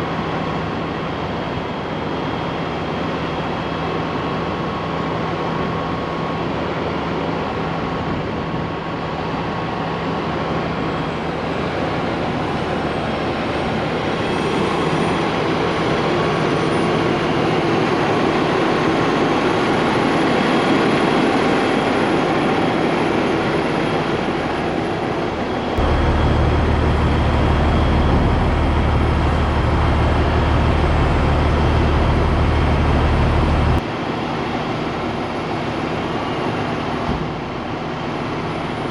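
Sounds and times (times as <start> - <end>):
heavy diesel machinery running: 0.0 - 38.9
deep low hum: 25.8 - 33.8.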